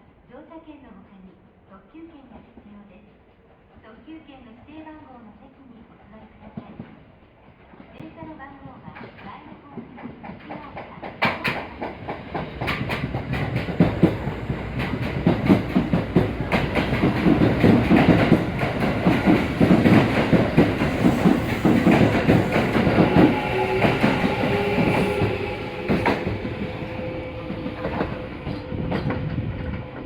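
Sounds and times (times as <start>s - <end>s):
train rumbling: 5.9s - 30.0s
wheels clacking over rail joints: 9.8s - 30.0s
train whining tones: 11.9s - 30.0s.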